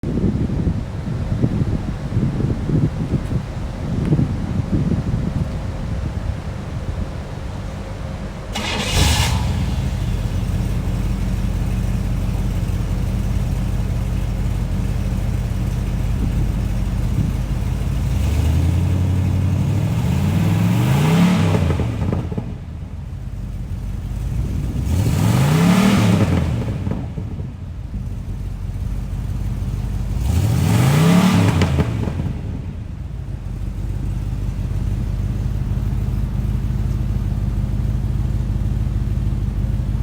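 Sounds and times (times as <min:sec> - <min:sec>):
car engine idling: 0:03.5 - 0:40.0
car engine revving: 0:08.4 - 0:27.4, 0:28.0 - 0:40.0.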